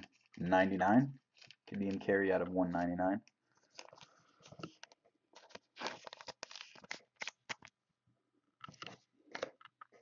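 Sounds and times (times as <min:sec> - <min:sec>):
card sleeves rustling and clicking: 0:03.6 - 0:07.7.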